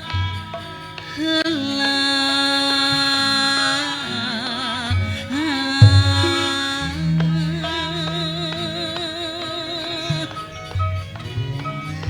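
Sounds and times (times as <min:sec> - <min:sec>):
low drum strokes: 0:05.8 - 0:07.0
person singing long note: 0:05.8 - 0:07.0
gamelan: 0:05.8 - 0:08.4.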